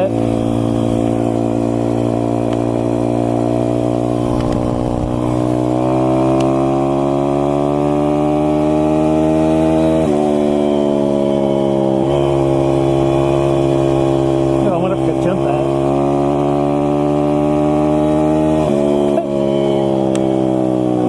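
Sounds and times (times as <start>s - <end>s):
motorbike engine revving: 0.0s - 14.7s.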